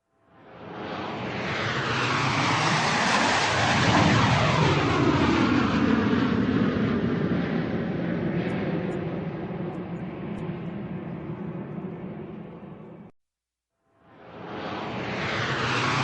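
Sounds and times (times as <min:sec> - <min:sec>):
airplane flying overhead: 0:00.2 - 0:13.1, 0:14.0 - 0:16.0.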